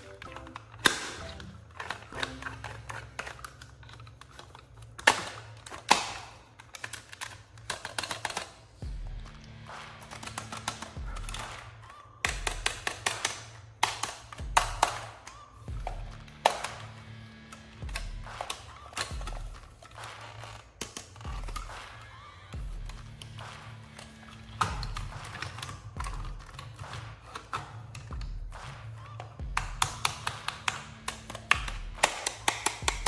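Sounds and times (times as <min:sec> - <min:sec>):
soft background music: 0:00.0 - 0:06.2
plastic toy packaging clicks: 0:00.0 - 0:08.8, 0:11.9 - 0:15.6, 0:16.3 - 0:22.1, 0:23.1 - 0:28.1, 0:29.1 - 0:33.0.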